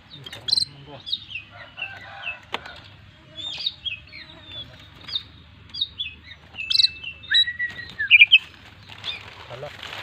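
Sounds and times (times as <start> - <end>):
bird singing chirps and whistles: 5.0 - 9.2.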